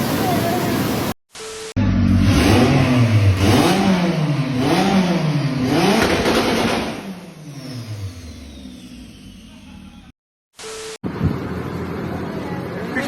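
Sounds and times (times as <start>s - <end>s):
vehicle engine revving: 1.8s - 10.1s.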